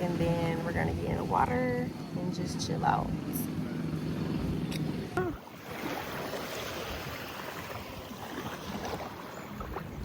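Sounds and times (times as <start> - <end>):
wind on microphone: 4.1 - 10.0.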